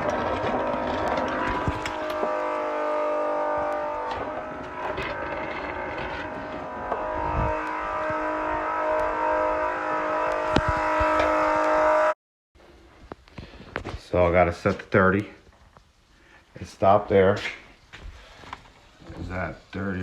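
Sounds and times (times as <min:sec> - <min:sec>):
electric tool motor whining: 0:00.0 - 0:09.6.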